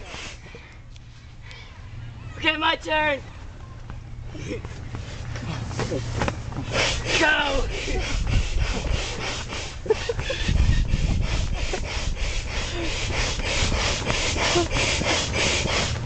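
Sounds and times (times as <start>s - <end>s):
manual air pump rasping strokes: 0.0s - 1.2s, 5.0s - 16.0s.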